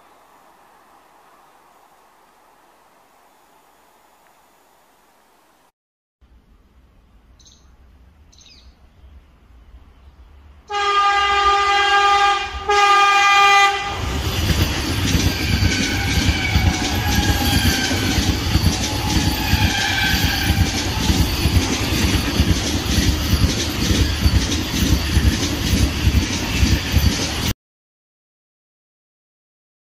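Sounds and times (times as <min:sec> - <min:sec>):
train rumble: 0:07.8 - 0:27.5
train horn blasts: 0:10.7 - 0:14.2, 0:15.2 - 0:22.4
wheels clattering on rails: 0:14.1 - 0:27.5.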